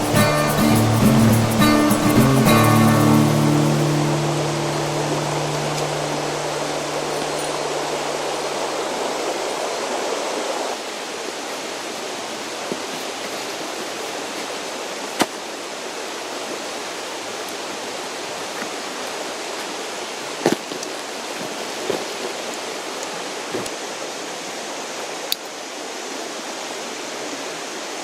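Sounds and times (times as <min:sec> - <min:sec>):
low steady hum: 0:00.0 - 0:09.7
mountain stream rushing: 0:00.0 - 0:28.0.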